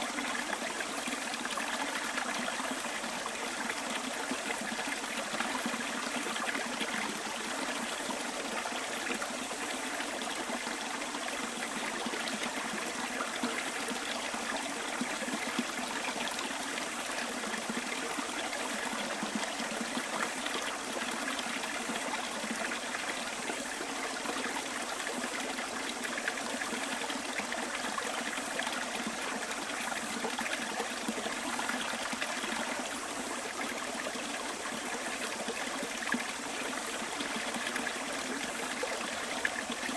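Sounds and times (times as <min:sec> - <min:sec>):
stream flowing and trickling: 0:00.0 - 0:39.9.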